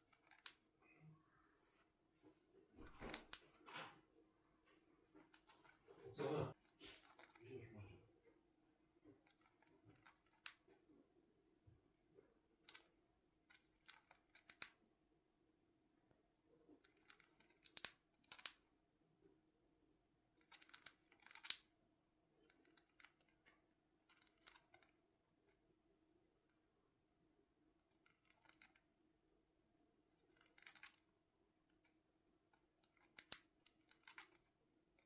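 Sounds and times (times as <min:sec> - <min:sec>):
bird beak nibbling and crunching: 0:00.0 - 0:00.7, 0:06.7 - 0:07.8, 0:09.0 - 0:10.8, 0:13.5 - 0:14.8, 0:16.7 - 0:18.6, 0:20.4 - 0:21.7, 0:22.4 - 0:25.0, 0:27.9 - 0:28.9, 0:30.2 - 0:31.1, 0:32.5 - 0:35.0.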